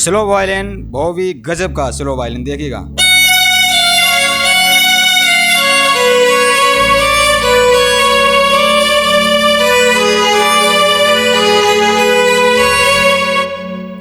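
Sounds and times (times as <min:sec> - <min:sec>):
low steady bass: 0:00.0 - 0:14.0
keyboard violin melody: 0:02.9 - 0:14.0.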